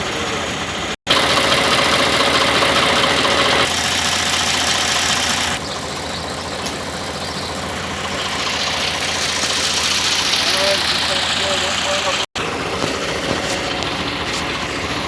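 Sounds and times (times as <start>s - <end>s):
miniature train engine running: 0.0s - 15.0s.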